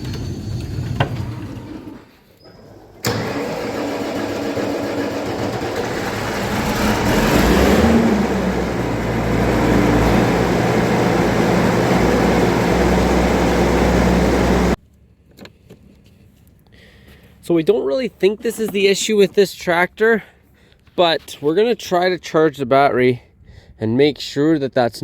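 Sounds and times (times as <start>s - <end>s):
diesel tractor engine running: 3.0s - 14.8s.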